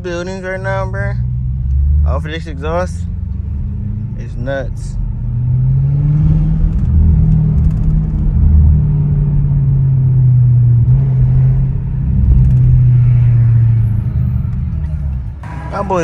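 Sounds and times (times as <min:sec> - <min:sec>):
car exhaust deep drone: 0:00.0 - 0:16.0.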